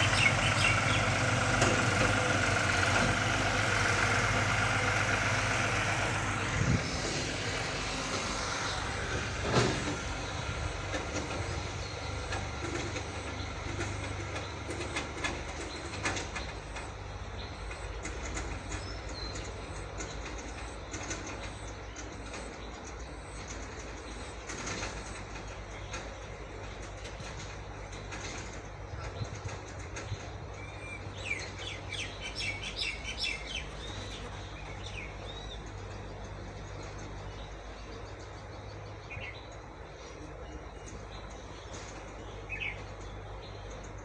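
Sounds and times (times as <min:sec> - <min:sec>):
diesel tractor engine running: 0:00.0 - 0:44.0.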